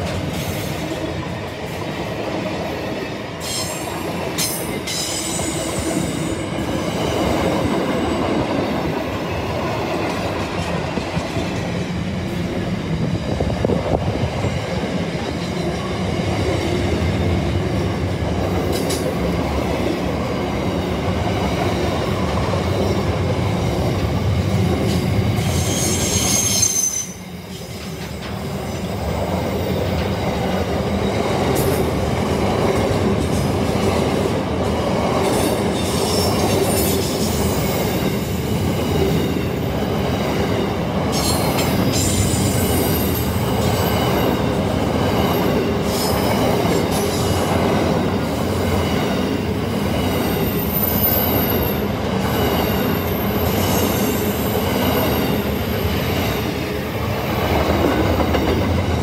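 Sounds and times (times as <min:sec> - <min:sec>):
train wheels rumbling on rail: 0:00.0 - 0:59.0
high-pitched wheel squeal: 0:25.4 - 0:27.3.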